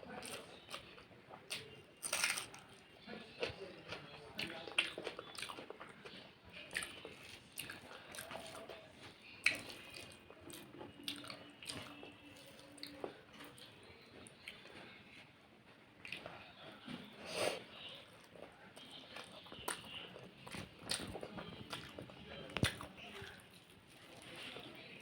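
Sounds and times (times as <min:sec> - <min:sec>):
person chewing and smacking: 0:00.2 - 0:02.7, 0:03.4 - 0:14.8, 0:18.0 - 0:23.5.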